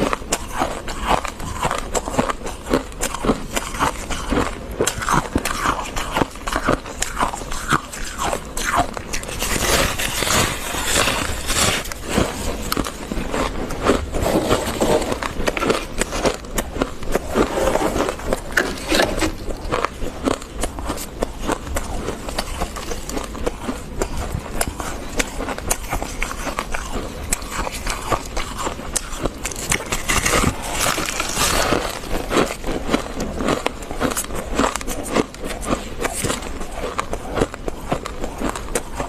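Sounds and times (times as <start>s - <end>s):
crunching of freezer frost: 0.0s - 39.0s.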